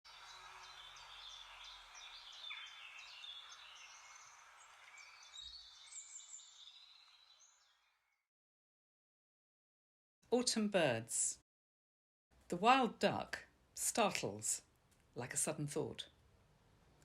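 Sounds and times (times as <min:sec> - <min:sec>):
background hiss: 0:00.1 - 0:06.9
small birds chirping: 0:00.1 - 0:08.2.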